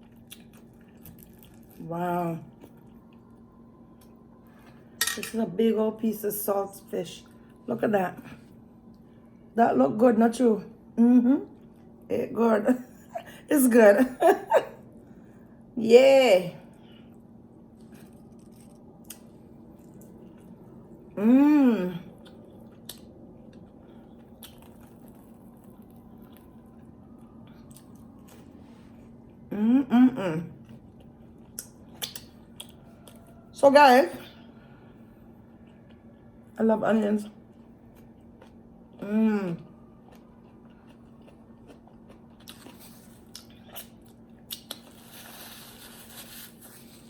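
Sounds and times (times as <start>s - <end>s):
chewing: 0.0s - 1.8s, 17.1s - 20.7s, 22.1s - 28.6s, 30.6s - 33.4s, 37.3s - 39.0s, 39.9s - 47.0s
person humming: 21.2s - 22.1s, 29.5s - 30.5s
soft mouth clicks: 31.6s - 32.8s.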